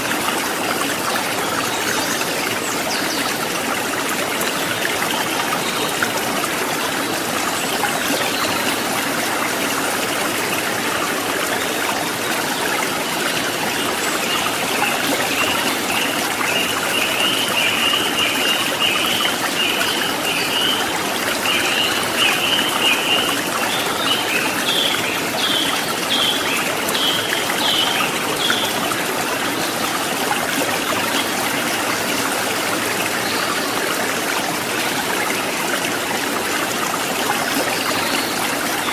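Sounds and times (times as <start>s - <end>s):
stream water trickling and splashing: 0.0s - 38.9s.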